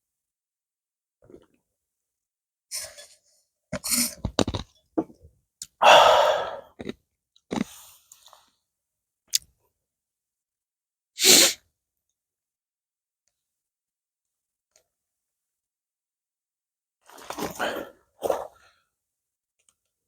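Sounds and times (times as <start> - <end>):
breathy sound: 5.8 - 6.7
crunchy chewing: 6.7 - 7.8.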